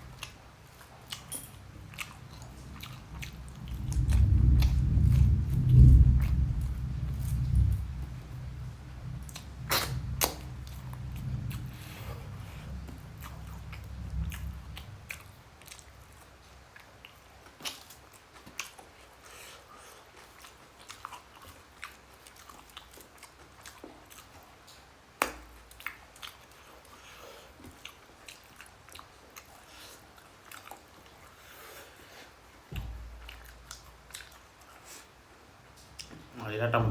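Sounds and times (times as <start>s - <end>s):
person chewing and smacking: 0.0s - 8.2s, 9.2s - 36.4s
low rumble: 1.9s - 15.2s, 32.8s - 34.0s.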